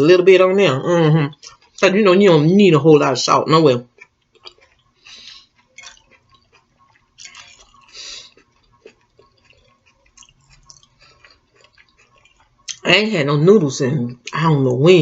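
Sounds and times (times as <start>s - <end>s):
person chewing: 1.2s - 12.9s.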